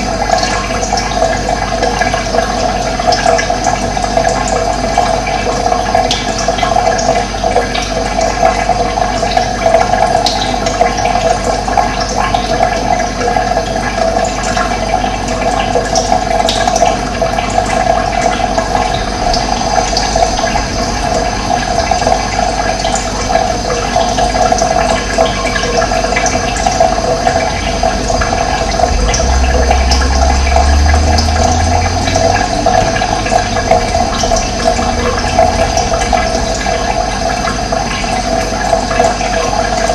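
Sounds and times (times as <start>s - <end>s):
running water: 0.0s - 39.9s
low rumble: 17.8s - 23.7s, 26.2s - 39.0s.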